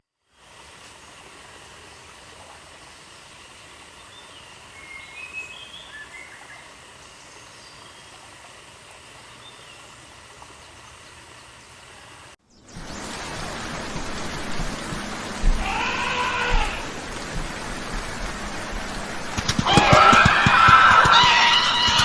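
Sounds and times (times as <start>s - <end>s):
steady background hiss: 0.0s - 19.7s
bird chirps: 4.0s - 8.2s.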